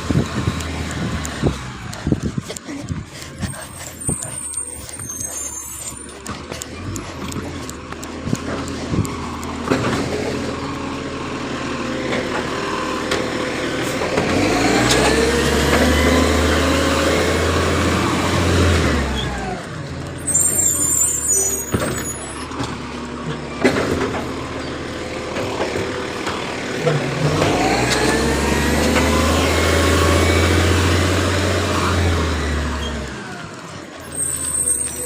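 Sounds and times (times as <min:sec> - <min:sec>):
diesel engine revving: 0:00.0 - 0:35.0
brief high squeal: 0:20.2 - 0:22.5, 0:34.0 - 0:35.0.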